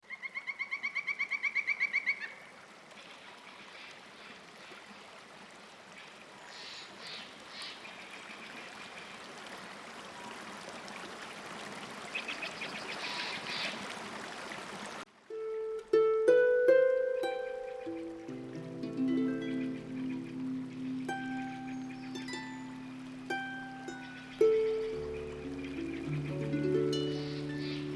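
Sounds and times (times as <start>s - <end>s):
flowing water: 2.4s - 27.9s
bird chirps: 15.4s - 27.9s.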